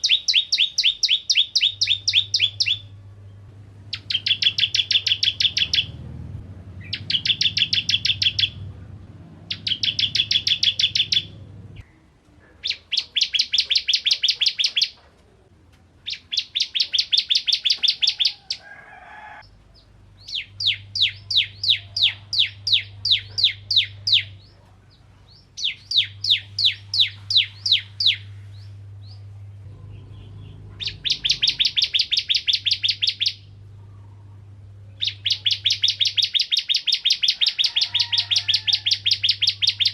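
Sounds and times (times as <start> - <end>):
bird singing sharp chip notes: 0.0 - 3.0, 3.9 - 6.0, 6.8 - 8.7, 9.5 - 11.9, 25.3 - 33.5
faint low hum: 0.0 - 39.9.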